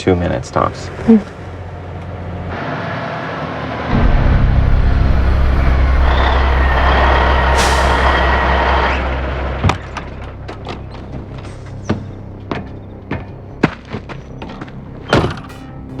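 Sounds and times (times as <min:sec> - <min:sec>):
truck engine rumbling: 0:00.0 - 0:16.0
hissing noise: 0:03.9 - 0:10.5.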